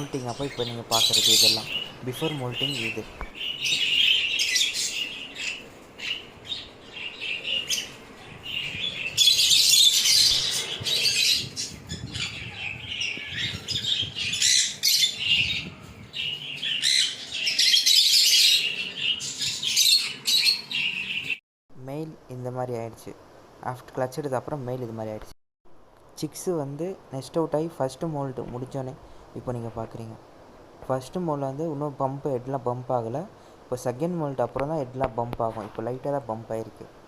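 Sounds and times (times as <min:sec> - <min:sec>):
budgerigars chattering: 0:00.0 - 0:07.9, 0:08.5 - 0:15.6.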